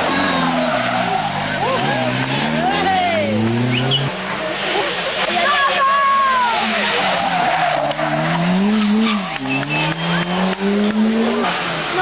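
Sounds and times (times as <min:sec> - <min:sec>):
rally car engine accelerating: 0:00.0 - 0:05.5, 0:06.1 - 0:12.0
tyres squealing: 0:00.0 - 0:12.0.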